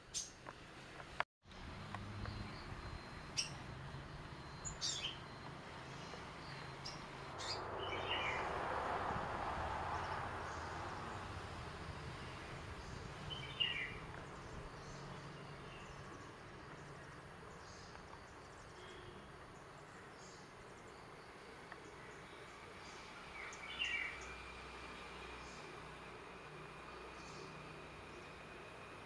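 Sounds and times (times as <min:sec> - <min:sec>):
outdoor background noise: 0:00.0 - 0:29.0
small bird chirping: 0:02.2 - 0:08.5.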